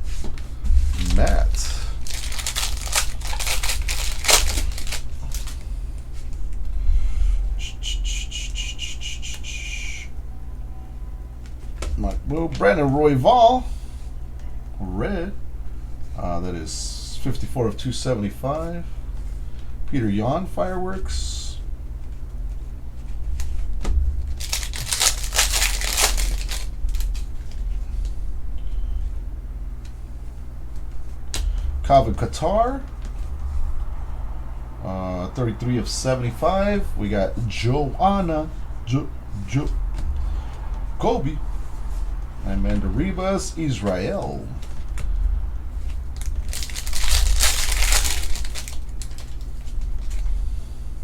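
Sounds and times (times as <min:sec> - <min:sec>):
steady low hum: 0:00.0 - 0:51.0
cards being handled: 0:00.1 - 0:06.4, 0:24.2 - 0:28.2, 0:45.9 - 0:50.3
foil wrappers crinkling: 0:00.5 - 0:06.4, 0:22.0 - 0:28.2, 0:42.6 - 0:50.6.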